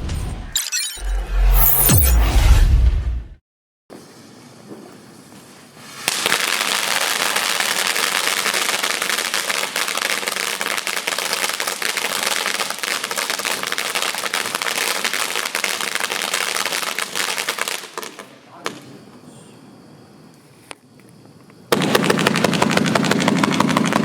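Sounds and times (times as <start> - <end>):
firework crackling with rapid pops: 5.6 - 19.0, 21.7 - 24.0.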